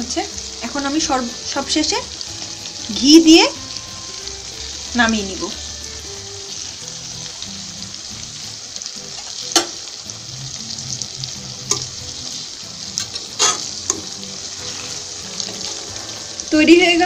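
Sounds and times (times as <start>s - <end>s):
food sizzling in oil: 0.0s - 17.0s
utensil clicking against pan: 11.6s - 12.0s, 12.9s - 14.2s.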